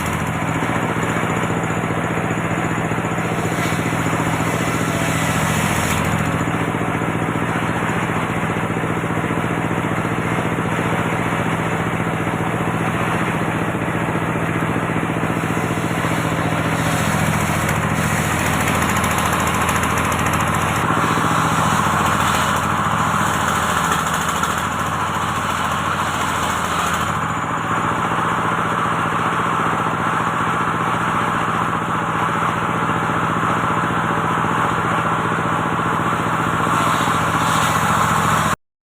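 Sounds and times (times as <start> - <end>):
saw blade cutting wood: 0.0 - 6.8, 15.2 - 27.4, 36.2 - 38.6
engine-driven circular saw running: 0.0 - 38.6.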